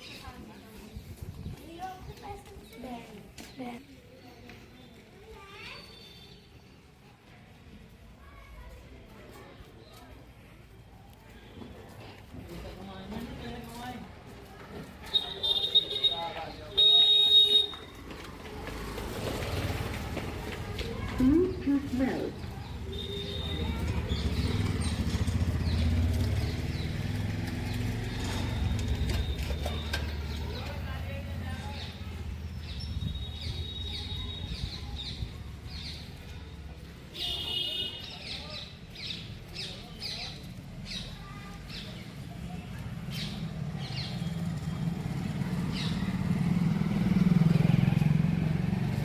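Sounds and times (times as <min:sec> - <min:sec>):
birds chirping: 0:15.0 - 0:18.0, 0:19.0 - 0:47.8
vehicle engine humming: 0:16.6 - 0:34.4.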